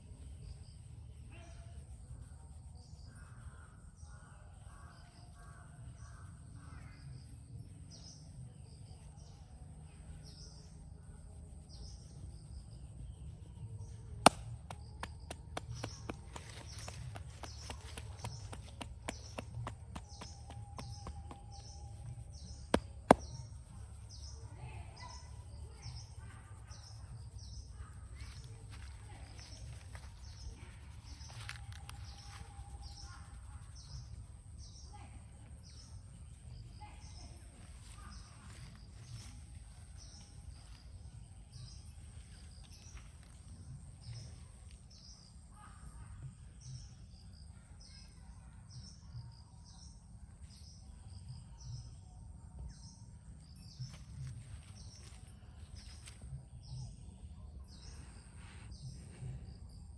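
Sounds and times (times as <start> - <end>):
bird chirping: 0.0 - 59.9
sharp cracks: 14.2 - 21.0.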